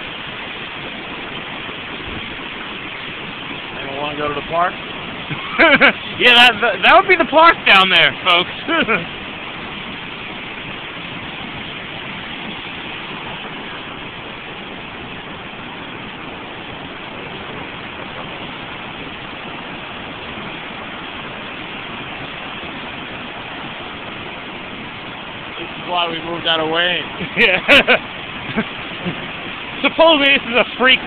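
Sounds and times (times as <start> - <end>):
floodwater rushing: 0.0 - 31.0.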